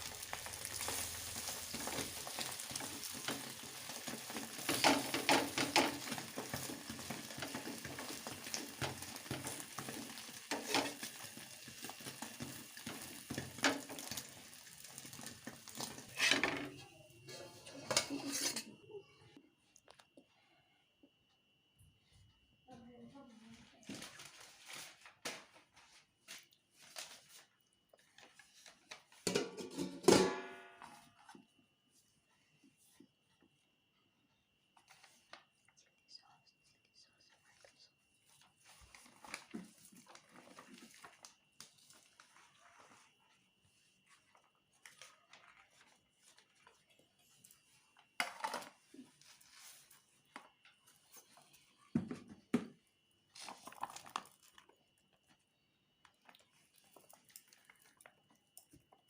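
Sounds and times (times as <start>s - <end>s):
food sizzling in a pan: 0.0s - 18.8s.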